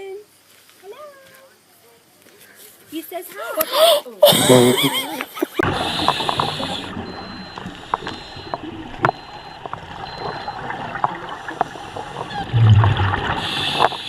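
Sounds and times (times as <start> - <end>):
water sloshing and splashing: 5.6 - 14.0.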